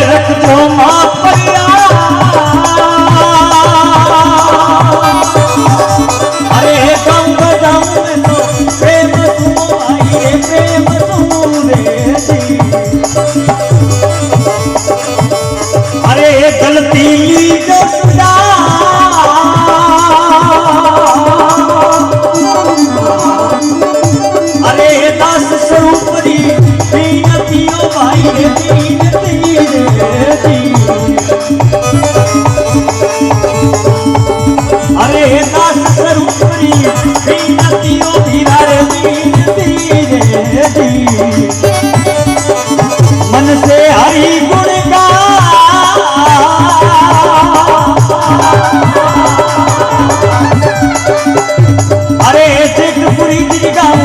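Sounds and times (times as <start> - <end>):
hand drum beat: 0.0 - 54.0
rattle percussion: 0.0 - 54.0
melody instrument playing a tune: 48.3 - 52.6.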